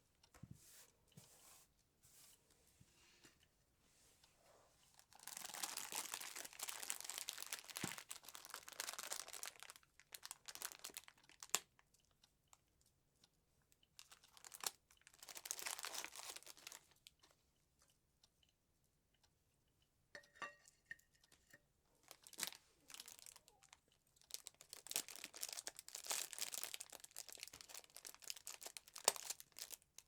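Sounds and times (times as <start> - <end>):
packaging crinkling: 5.0 - 11.8, 14.0 - 17.0, 22.0 - 30.0
light clicks and taps: 20.2 - 22.6.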